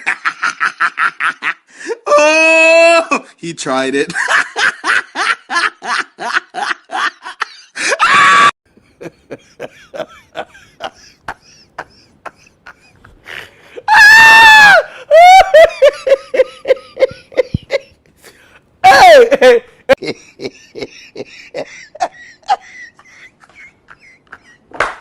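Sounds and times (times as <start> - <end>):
person laughing: 4.2 - 13.9, 14.8 - 18.0, 18.9 - 24.7.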